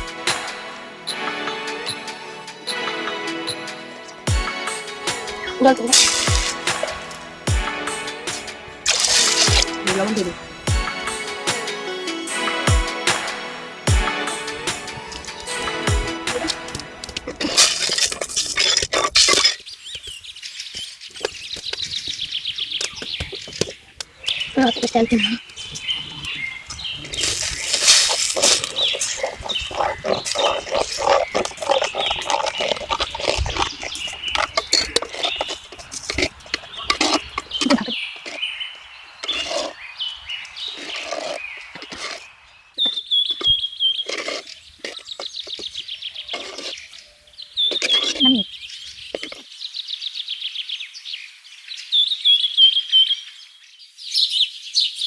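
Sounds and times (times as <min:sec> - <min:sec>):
birds chirping: 0:00.0 - 0:55.0
utensils clinking against dishes: 0:05.6 - 0:07.2, 0:08.3 - 0:10.4, 0:14.9 - 0:19.7, 0:27.1 - 0:38.4
steady hiss: 0:25.0 - 0:30.5.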